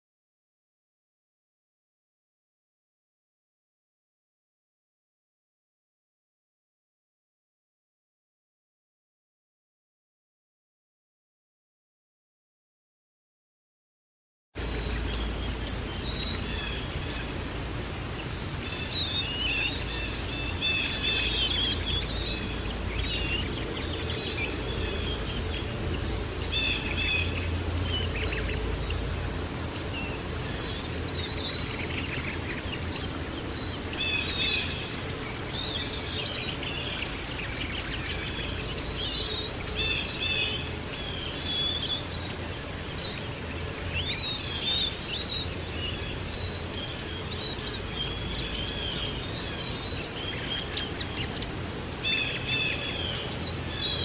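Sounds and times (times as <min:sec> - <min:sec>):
songbirds chirping: 0:14.6 - 0:54.0.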